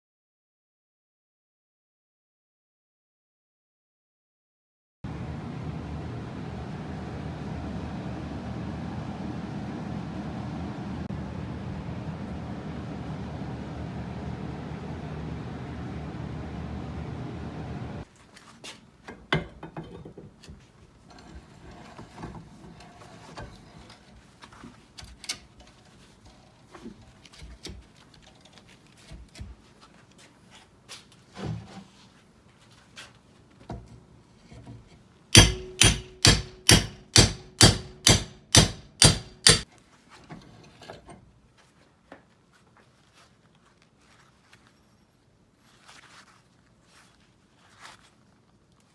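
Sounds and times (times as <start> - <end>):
hammer strikes ringing: 35.4 - 39.6.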